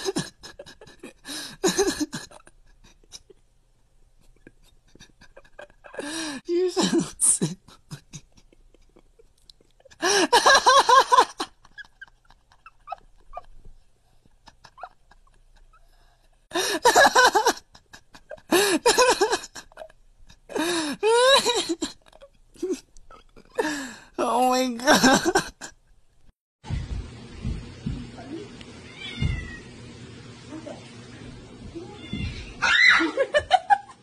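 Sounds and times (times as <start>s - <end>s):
cat high-pitched calls: 28.9s - 29.6s.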